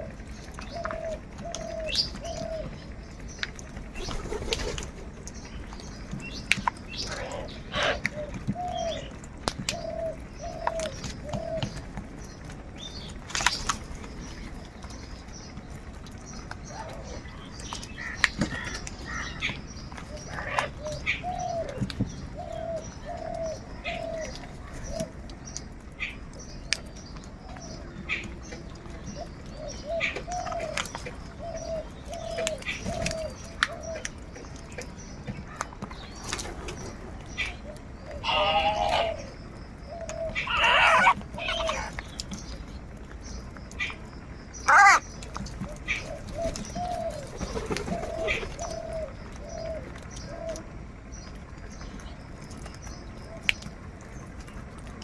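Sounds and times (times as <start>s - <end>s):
birds chirping: 0.0s - 55.0s
crows cawing: 38.2s - 39.2s, 40.2s - 41.9s, 44.6s - 45.1s.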